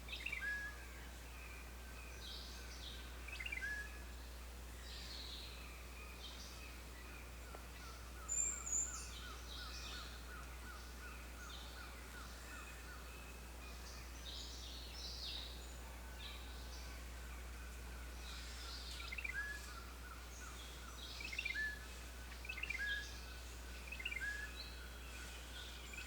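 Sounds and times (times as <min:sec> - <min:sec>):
birds chirping: 0:07.8 - 0:26.0.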